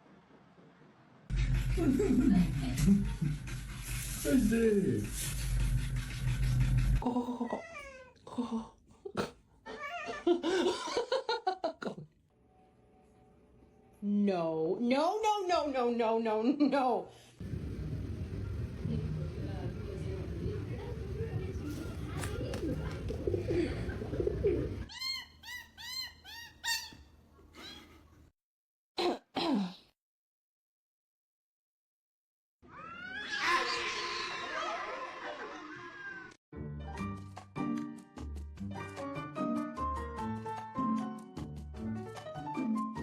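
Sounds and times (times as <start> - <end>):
noisy background: 17.4 - 24.9
animal chirping: 24.9 - 27.1.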